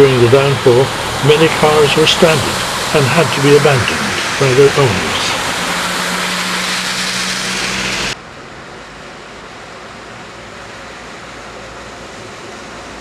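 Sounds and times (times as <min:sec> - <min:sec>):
loud rushing water: 0:00.0 - 0:08.2
steady rushing noise: 0:00.0 - 0:08.3
vehicle engine running: 0:00.0 - 0:08.5.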